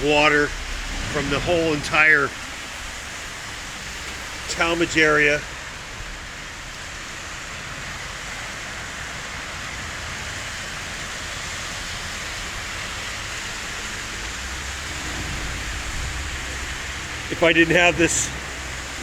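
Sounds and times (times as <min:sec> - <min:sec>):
floodwater rushing over street: 0:00.0 - 0:19.0
heavy rain: 0:00.0 - 0:19.0
low rumble: 0:14.3 - 0:19.0.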